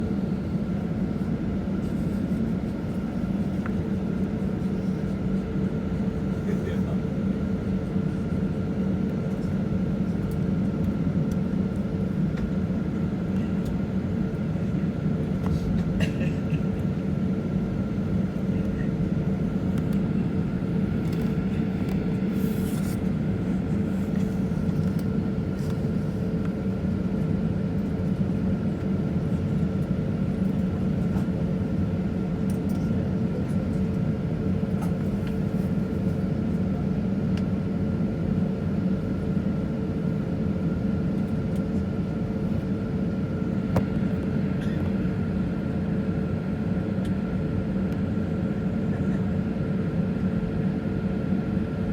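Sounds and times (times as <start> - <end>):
airplane cabin engine rumble: 0.0 - 51.9.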